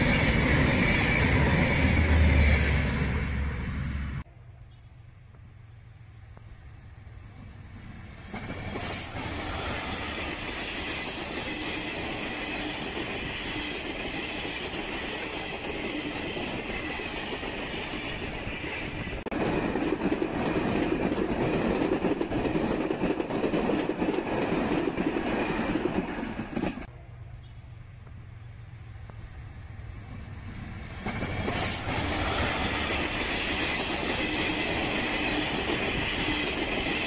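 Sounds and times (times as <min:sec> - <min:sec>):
deep train rumble: 0:00.0 - 0:37.0
train wheels clattering on rails: 0:07.4 - 0:26.9, 0:30.0 - 0:37.0.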